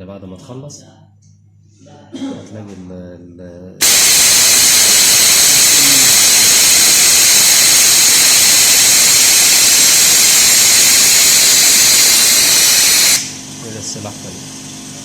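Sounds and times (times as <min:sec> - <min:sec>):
compressed air hissing: 0:03.8 - 0:13.5.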